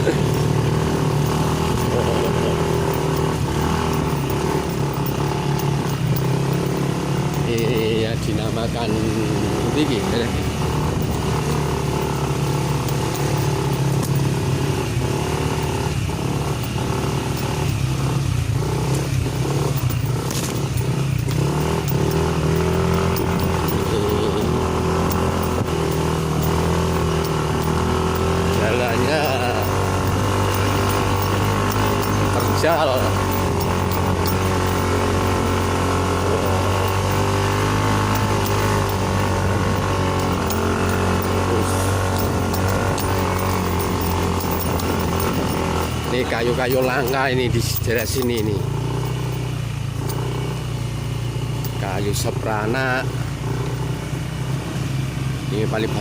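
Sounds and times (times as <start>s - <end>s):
clatter from bumpy ride: 0.0s - 53.9s
motorcycle engine under load: 0.0s - 56.0s.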